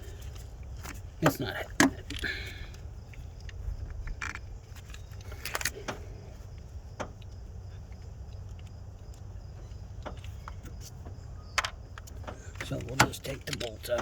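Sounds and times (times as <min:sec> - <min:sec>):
low steady rumble: 0:00.0 - 0:14.0
hand tools clicking on metal: 0:12.0 - 0:14.0.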